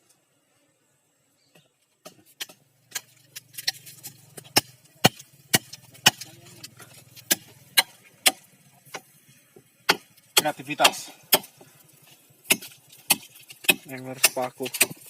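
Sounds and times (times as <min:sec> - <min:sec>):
ice block being struck: 0:04.4 - 0:06.4, 0:07.2 - 0:09.1, 0:12.4 - 0:15.0.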